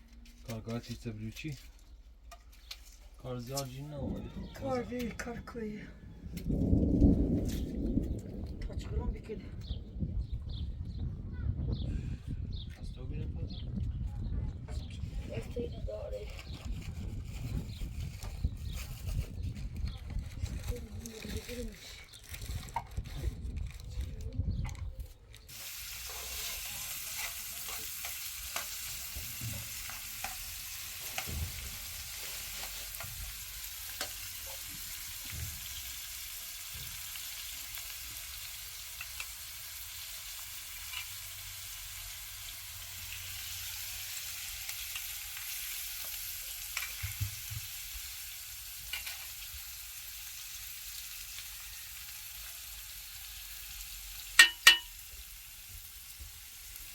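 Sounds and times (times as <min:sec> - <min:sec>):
small crackles: 0:00.0 - 0:09.7, 0:16.2 - 0:54.8
sizzling hiss: 0:25.5 - 0:56.9.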